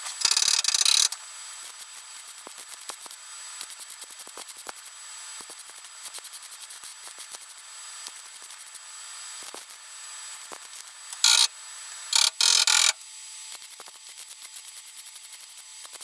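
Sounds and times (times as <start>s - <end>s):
hand tool ratcheting clicks: 0.2s - 1.2s, 11.1s - 11.5s, 12.2s - 13.0s.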